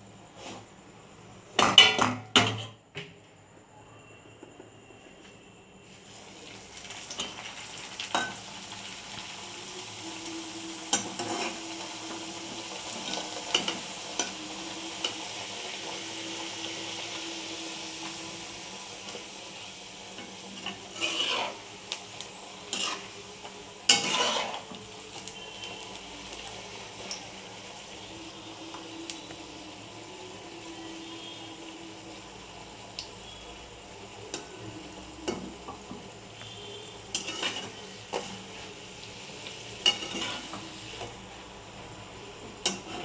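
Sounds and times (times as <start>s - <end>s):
food sizzling in hot oil: 5.8s - 43.0s
metal spatula scraping pan: 10.9s - 11.8s, 20.1s - 26.0s, 37.1s - 38.7s, 39.7s - 41.1s, 42.6s - 43.0s.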